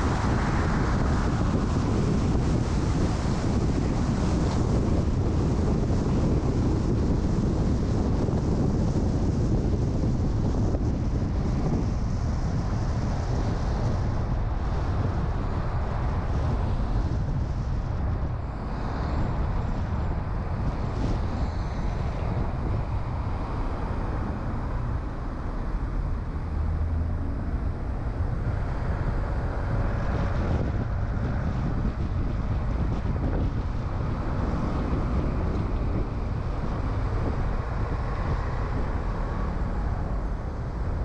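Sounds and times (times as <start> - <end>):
car road and engine noise: 0.0 - 41.0
wind rumble on microphone: 0.0 - 41.0.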